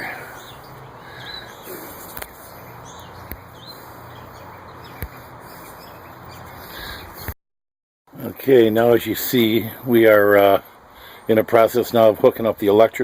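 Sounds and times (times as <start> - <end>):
bird chirps: 0.0 - 7.3.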